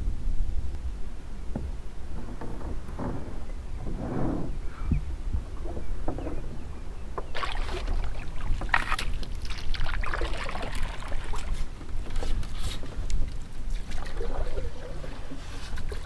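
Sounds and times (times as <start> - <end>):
wind rumble on microphone: 0.0 - 16.0
water splashing against hull: 1.4 - 16.0
small knocks on hull: 1.5 - 4.0, 5.4 - 12.5.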